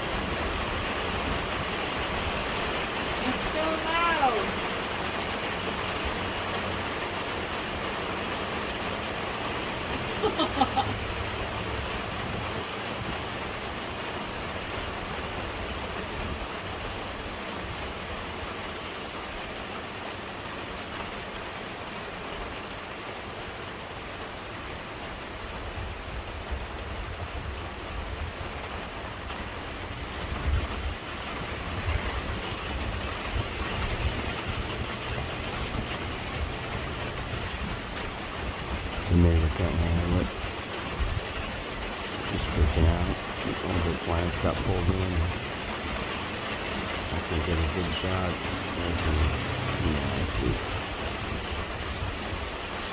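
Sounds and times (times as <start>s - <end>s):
heavy rain pouring: 0.0s - 52.9s
wind buffeting microphone: 25.6s - 52.8s.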